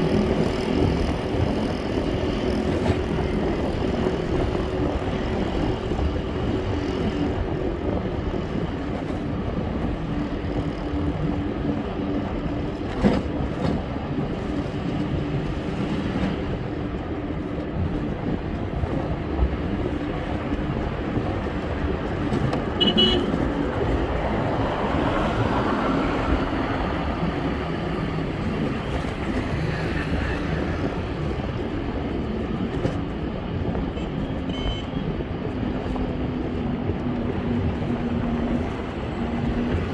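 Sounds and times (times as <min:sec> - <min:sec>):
road and traffic noise: 0:00.0 - 0:39.9
horn beep: 0:22.8 - 0:23.4, 0:34.5 - 0:35.0.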